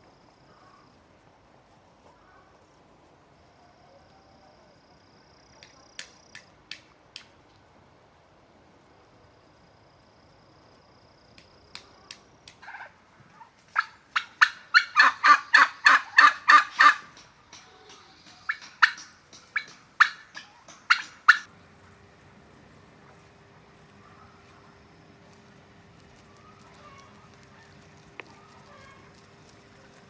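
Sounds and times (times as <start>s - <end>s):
turkey gobbling: 12.6s - 13.0s, 13.7s - 17.1s, 18.4s - 21.5s.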